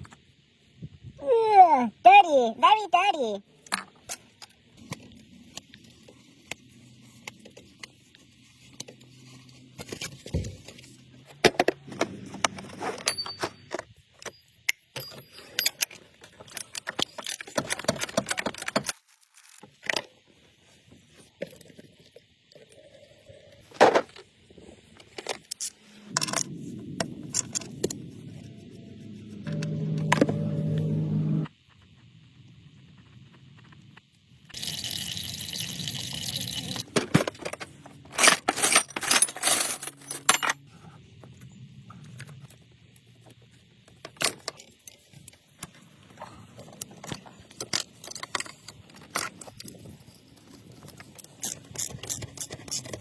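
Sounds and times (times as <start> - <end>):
hand tools clinking and rattling: 11.9 - 19.6, 36.8 - 40.6
low steady hum: 25.8 - 31.5.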